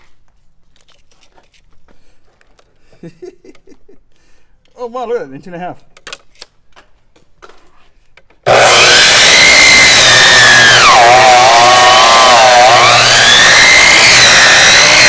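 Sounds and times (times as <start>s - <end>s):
electric chop saw whining: 8.4s - 15.0s.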